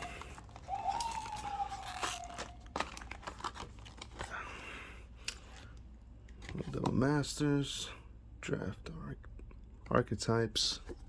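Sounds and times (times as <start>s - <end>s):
plastic wrap and cardboard tearing: 0.0s - 4.4s.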